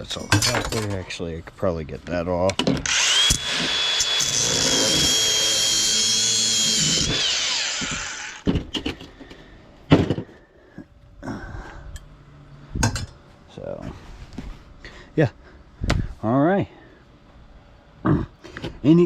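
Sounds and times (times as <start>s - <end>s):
power tool whining: 2.8s - 8.5s.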